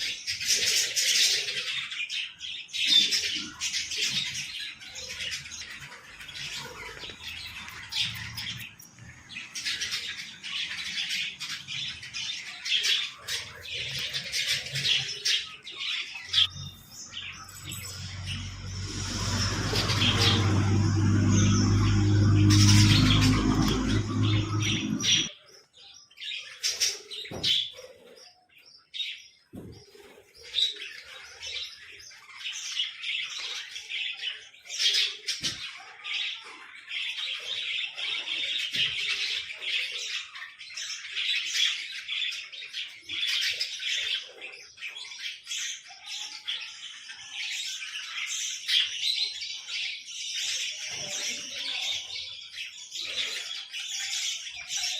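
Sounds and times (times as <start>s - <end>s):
small birds chirping: 0.0s - 54.9s
loud low rumble: 16.5s - 25.3s.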